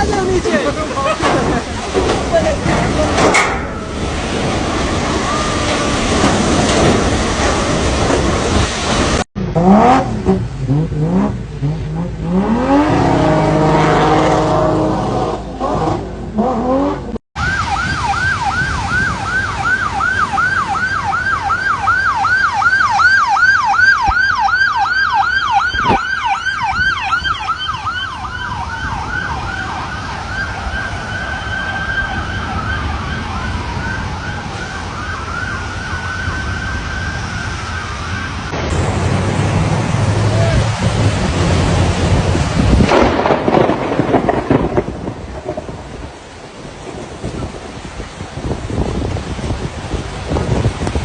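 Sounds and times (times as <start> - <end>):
emergency siren yelping and wailing: 3.7 - 7.8, 17.4 - 38.8
vehicle engine revving: 9.4 - 17.2.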